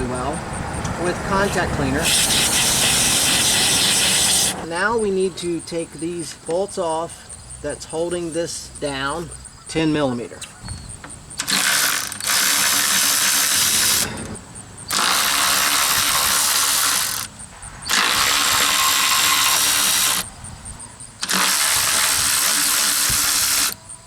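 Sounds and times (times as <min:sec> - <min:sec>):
power ratchet running: 0:00.0 - 0:04.7, 0:11.3 - 0:20.3, 0:21.2 - 0:23.8.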